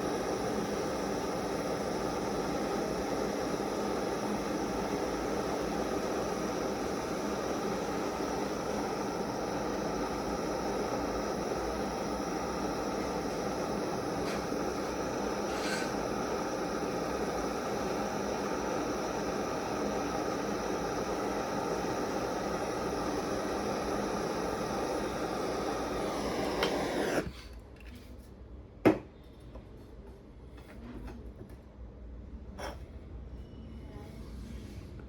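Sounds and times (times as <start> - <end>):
torch flame hissing: 0.0 - 27.5.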